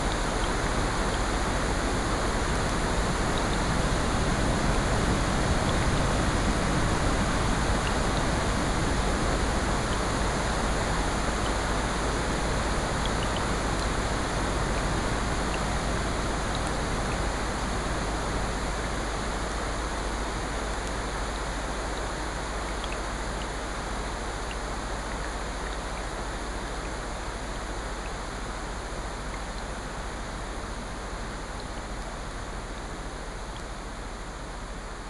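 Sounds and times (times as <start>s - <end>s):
faint small ticks: 0.0s - 1.5s, 16.5s - 16.8s, 22.7s - 28.3s
rain: 0.0s - 35.0s.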